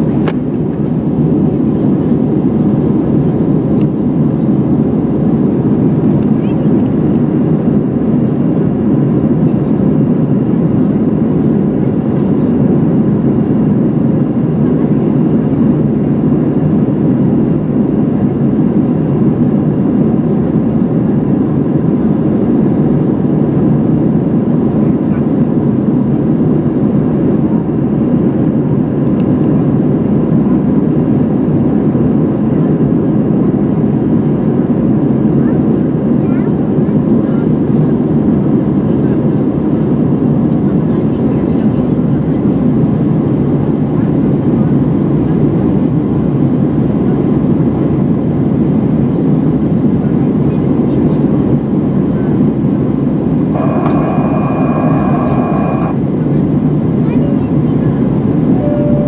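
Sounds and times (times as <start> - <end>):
jet engines rumbling: 0.0 - 59.0
airflow past fuselage: 53.1 - 56.2
faint steady tones: 53.5 - 56.4, 57.9 - 59.0.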